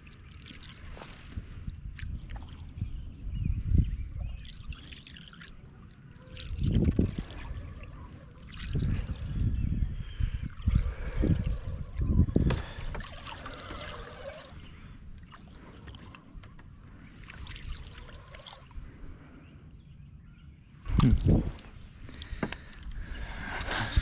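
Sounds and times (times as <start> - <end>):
water lapping around a boat: 0.0 - 24.0
low thumps on a boat: 12.1 - 13.2, 22.3 - 22.7.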